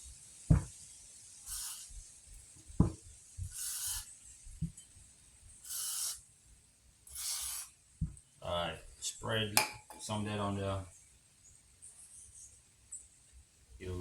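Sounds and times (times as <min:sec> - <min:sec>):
aerosol spray can hissing: 0:00.0 - 0:04.8, 0:05.6 - 0:06.3, 0:07.1 - 0:07.8
sharp knocks: 0:00.5 - 0:00.8.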